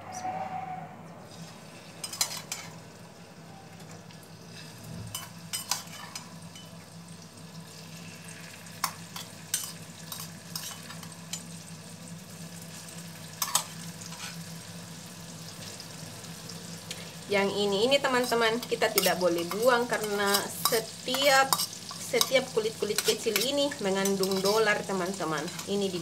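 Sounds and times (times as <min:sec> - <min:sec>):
squid frying in hot oil: 0:01.4 - 0:26.0
spoon clinking on steel: 0:18.2 - 0:24.7.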